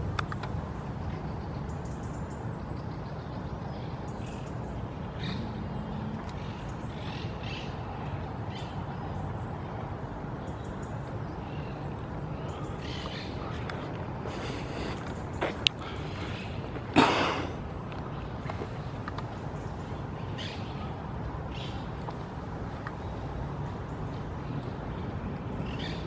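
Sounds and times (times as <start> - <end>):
birds chirping: 0.0 - 7.9, 10.5 - 26.0
low background rumble: 0.0 - 9.6.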